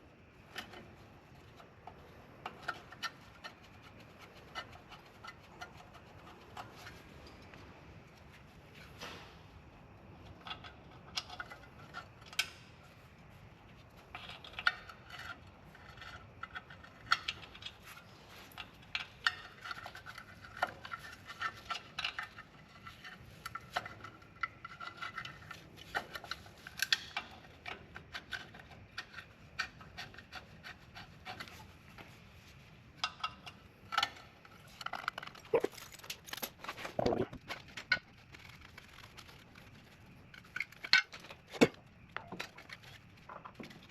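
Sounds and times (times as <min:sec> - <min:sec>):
metal tools clinking: 0:35.2 - 0:37.2.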